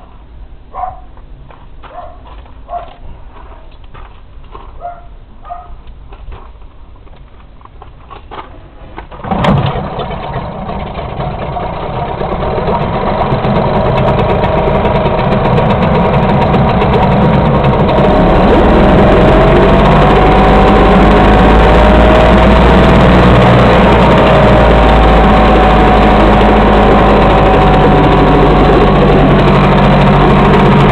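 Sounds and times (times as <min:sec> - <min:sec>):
outboard motor running: 0:09.1 - 0:30.9.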